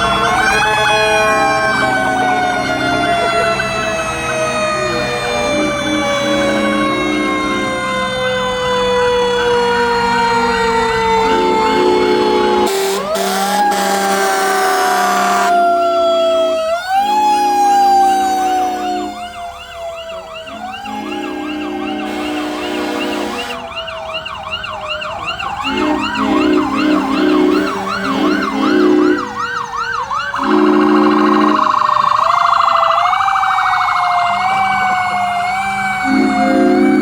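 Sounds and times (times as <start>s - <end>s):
siren wailing: 0.0s - 37.0s
siren yelping: 0.0s - 37.0s
low horn blasting: 0.9s - 7.8s, 11.0s - 19.4s, 20.4s - 23.7s, 25.6s - 29.4s, 30.4s - 31.7s, 36.0s - 37.0s.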